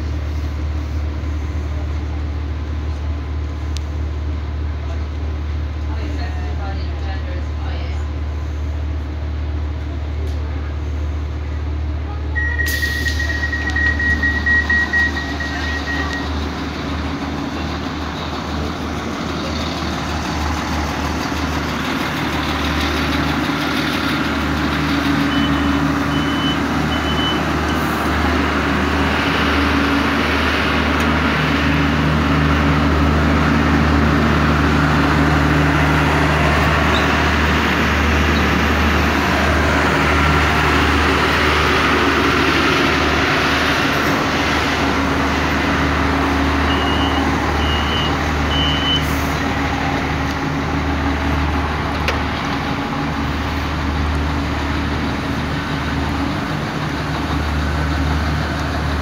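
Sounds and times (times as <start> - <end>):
diesel train engines idling: 0.0 - 59.0
short high beeps: 12.4 - 16.3
pulsing door warning beep: 25.3 - 27.4.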